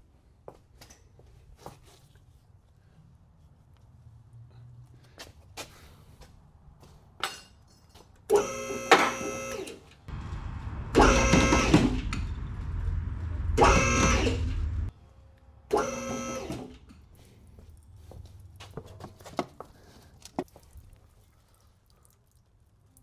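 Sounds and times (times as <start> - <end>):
electric motor whining: 8.3 - 9.7, 10.6 - 14.9, 15.7 - 16.8
low rumble: 10.1 - 15.0.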